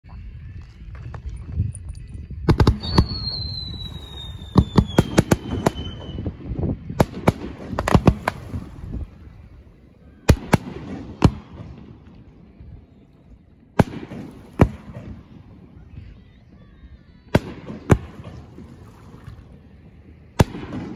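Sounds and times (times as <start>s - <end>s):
fireworks bangs and pops: 2.5s - 9.2s, 13.8s - 15.6s, 20.4s - 20.9s
falling firework whistle: 2.7s - 6.4s.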